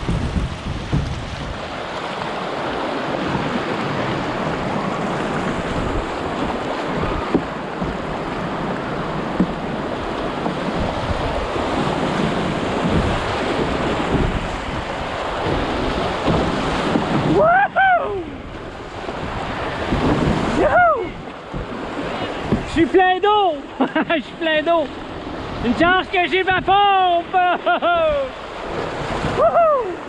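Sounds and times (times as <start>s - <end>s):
wind buffeting microphone: 0.0s - 22.9s
river water rushing: 0.0s - 30.0s.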